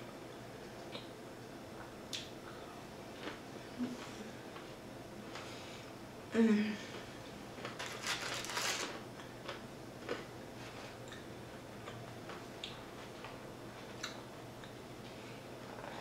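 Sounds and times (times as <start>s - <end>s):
crunching fried chicken: 7.6s - 10.3s
chewing crackles and clicks: 11.0s - 14.8s.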